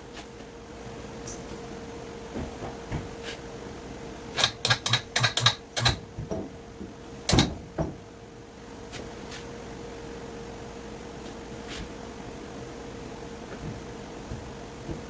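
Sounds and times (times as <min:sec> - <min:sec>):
sharp clicks and knocks: 0:04.4 - 0:06.5.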